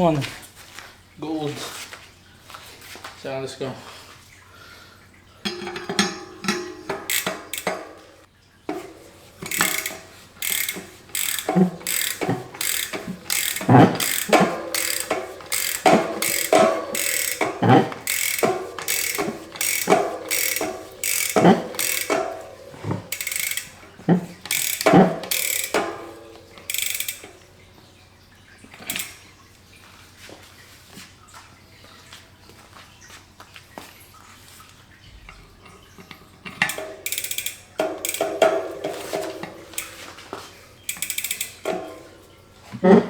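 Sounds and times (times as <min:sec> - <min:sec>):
metallic ratcheting clicks: 0:05.5 - 0:08.2, 0:08.8 - 0:27.4, 0:28.8 - 0:29.2, 0:36.5 - 0:40.1, 0:40.8 - 0:42.1.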